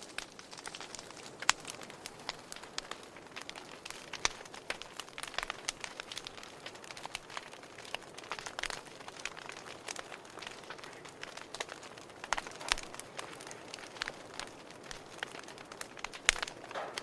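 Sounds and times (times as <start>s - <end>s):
soft fire hiss: 0.0s - 17.0s
wood fire crackling: 0.0s - 17.0s.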